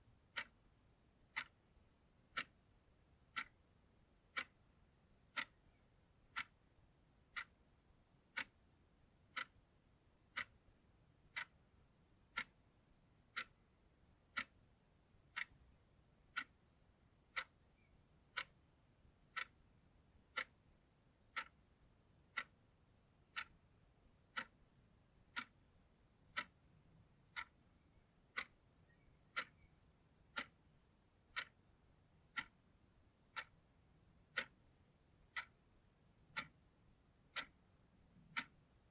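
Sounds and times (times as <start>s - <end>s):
clock ticking: 0.0s - 38.9s.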